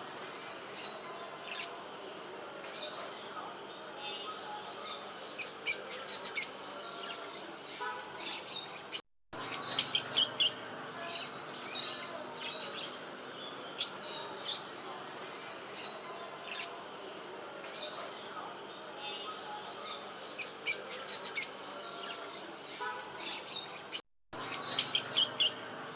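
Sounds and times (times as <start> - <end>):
pet birds chirping: 4.2 - 12.9, 19.2 - 25.7.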